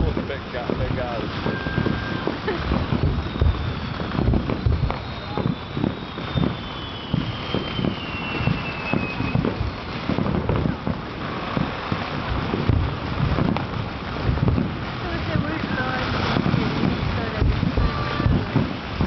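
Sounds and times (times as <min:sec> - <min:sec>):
distant fireworks booming: 0:00.0 - 0:19.0
wind on microphone: 0:00.0 - 0:19.0
faint falling whistle: 0:01.4 - 0:02.4, 0:03.0 - 0:09.9.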